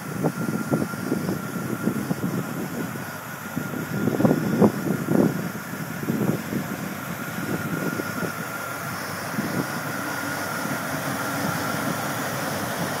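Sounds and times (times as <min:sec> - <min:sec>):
engine idling: 0:00.0 - 0:13.0
faint engine whine: 0:00.0 - 0:13.0.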